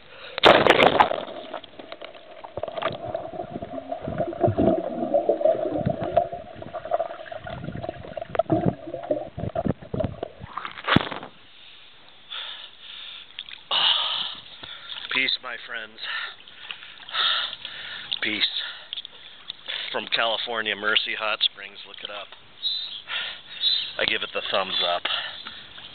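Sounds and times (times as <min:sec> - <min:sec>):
water sloshing and splashing: 0:00.4 - 0:11.3
steady hum: 0:01.0 - 0:10.6.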